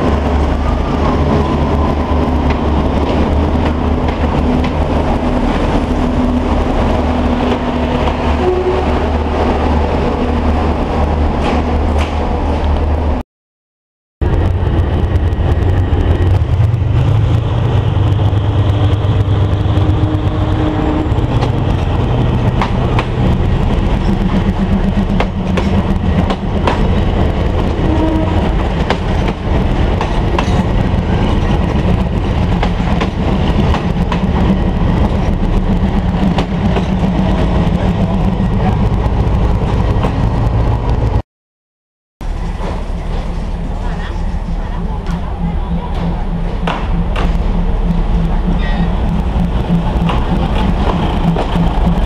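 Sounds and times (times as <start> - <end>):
diesel engines droning: 42.8 - 52.0
wheels clicking over rail joints: 45.0 - 52.0.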